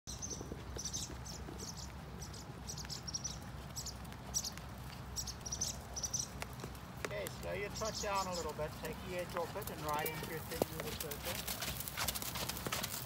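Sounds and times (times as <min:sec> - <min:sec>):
small bird chirping: 0:00.1 - 0:06.4, 0:07.3 - 0:09.9.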